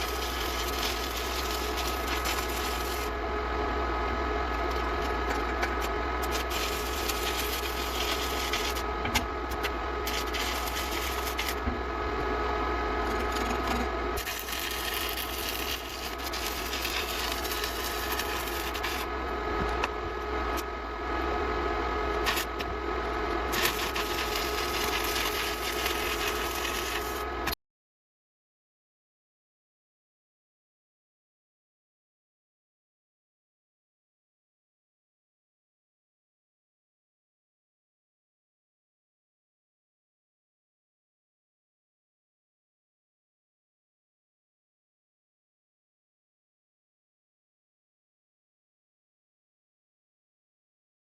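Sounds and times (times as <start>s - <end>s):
buzzing hissing metalworking noise: 0.0s - 27.6s.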